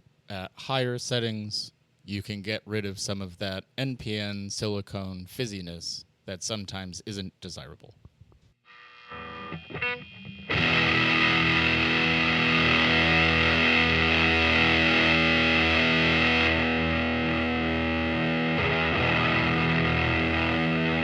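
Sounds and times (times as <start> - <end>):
fuzz electric guitar chord: 8.7 - 21.0
quiet guitar notes: 9.1 - 21.0.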